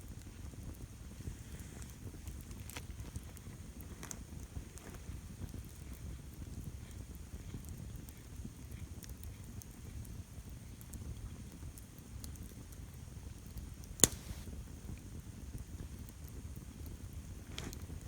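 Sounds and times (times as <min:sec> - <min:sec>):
campfire crackling: 0:13.9 - 0:14.5
loud sharp pop: 0:14.0 - 0:14.5.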